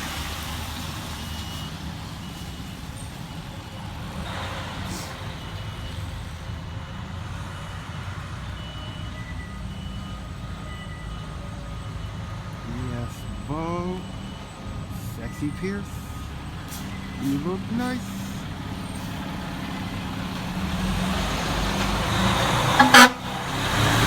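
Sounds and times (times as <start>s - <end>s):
fire engine diesel running: 0.0s - 24.0s
backup alarm beeping: 5.4s - 19.2s.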